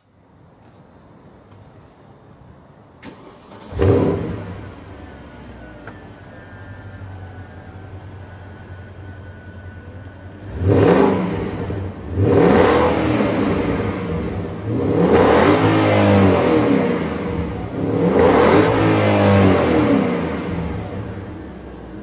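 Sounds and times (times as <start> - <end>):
car engine revving: 3.1 - 5.6, 6.9 - 22.0.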